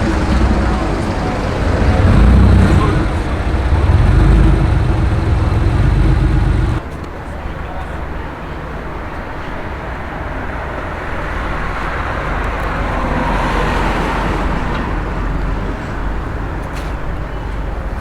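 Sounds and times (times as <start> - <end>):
car passing by: 0.0 - 6.8, 10.2 - 16.3
low rumble: 0.0 - 6.8
road traffic: 0.0 - 18.0.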